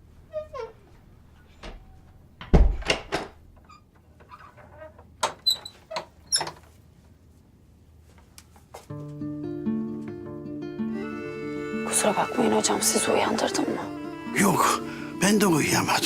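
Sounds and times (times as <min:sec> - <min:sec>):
door creaking: 0:00.2 - 0:06.7
heavy door thud: 0:02.4 - 0:03.4.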